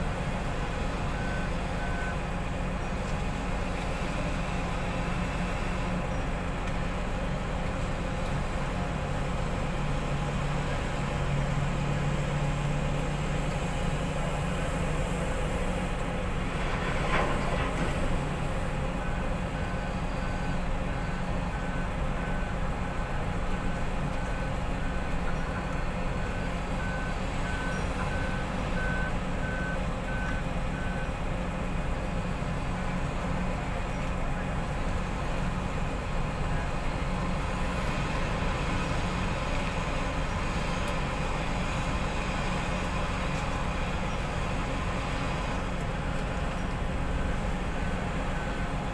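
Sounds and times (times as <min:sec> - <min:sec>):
heavy equipment engine running: 0:00.0 - 0:48.9
reversing alarm beeping: 0:01.1 - 0:02.3, 0:18.8 - 0:25.6, 0:26.2 - 0:31.2.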